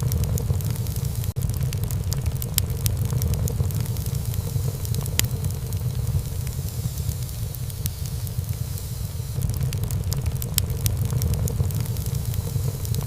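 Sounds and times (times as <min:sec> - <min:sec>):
fire rumbling: 0:00.0 - 0:13.0
wood crackling and popping: 0:00.0 - 0:13.0.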